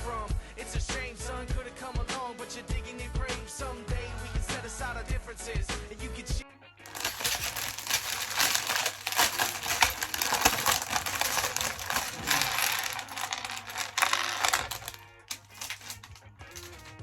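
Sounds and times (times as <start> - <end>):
plastic bags rustling: 6.9 - 17.0
plastic bricks clattering: 6.9 - 17.0.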